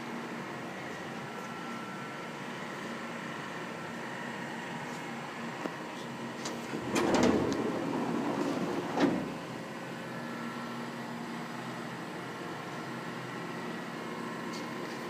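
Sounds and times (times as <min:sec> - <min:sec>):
rushing mechanical noise: 0:06.5 - 0:09.6.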